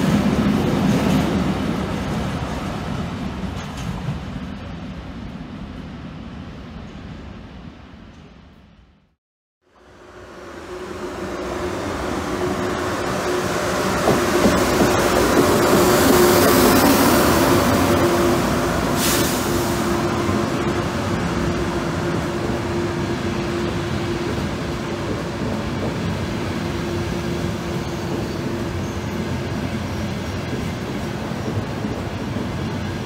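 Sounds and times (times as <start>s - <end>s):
train humming and rumbling past: 0.0s - 9.1s, 9.7s - 33.0s
short hiss: 19.0s - 19.8s.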